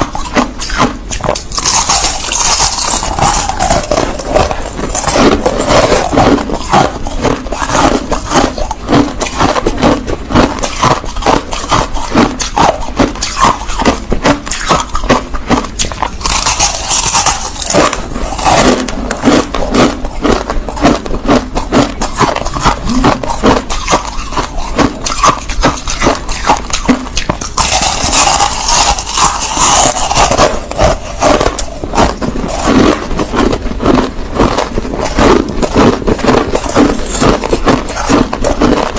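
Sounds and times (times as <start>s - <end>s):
crushed ice being chewed: 0.0s - 38.9s.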